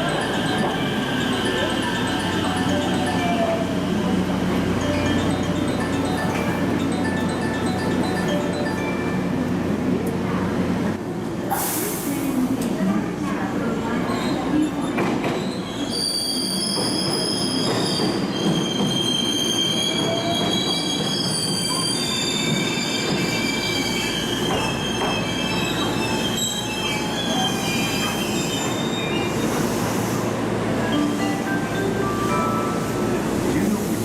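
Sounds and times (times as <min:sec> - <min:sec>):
train wheels squealing on rails: 0:13.9 - 0:30.5.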